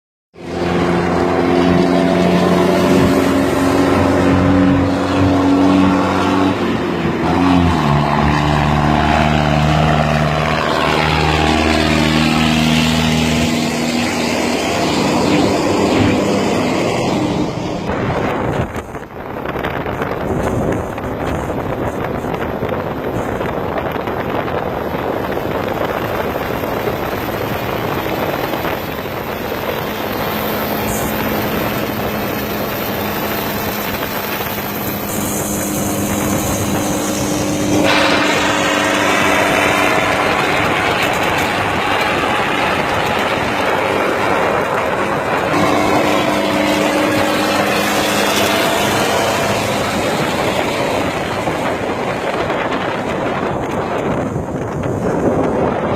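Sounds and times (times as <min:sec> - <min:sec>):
steady tones: 0:00.4 - 0:55.8
tractor diesel engine running: 0:00.4 - 0:55.9
trolley road rumble and rattling: 0:00.4 - 0:55.9
wind noise on microphone: 0:00.4 - 0:55.9.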